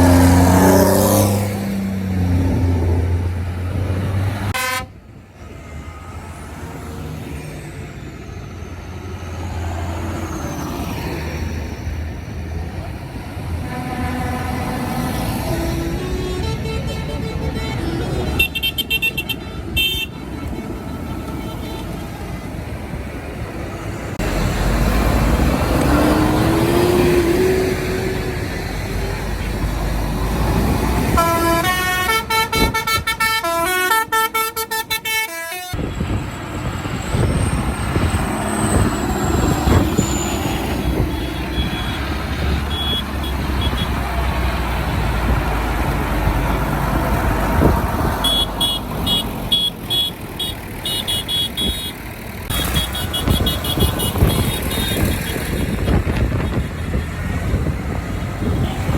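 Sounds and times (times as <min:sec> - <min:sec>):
tractor engines running: 0:00.0 - 0:58.9
horns tooting: 0:04.3 - 0:06.1, 0:12.9 - 0:22.5, 0:25.9 - 0:35.9, 0:37.1 - 0:44.8, 0:47.4 - 0:58.9.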